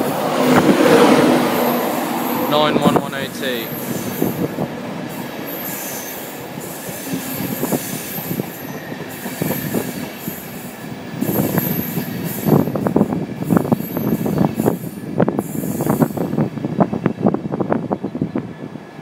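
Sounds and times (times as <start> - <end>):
train wheel and rail rumble: 0.0 - 19.0
high-pitched squeal: 0.5 - 10.6.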